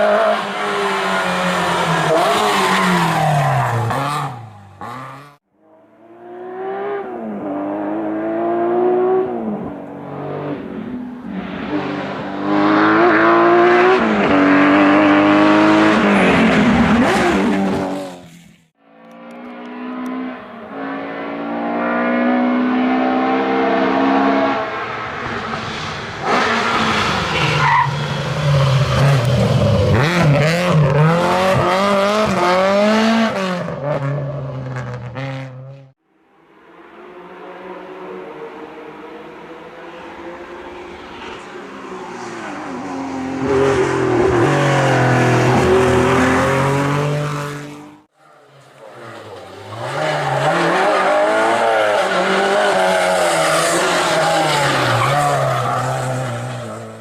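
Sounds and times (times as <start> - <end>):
rally car engines revving: 0.0 - 18.4, 19.0 - 35.9, 36.9 - 57.0
car passing on full throttle: 0.0 - 57.0.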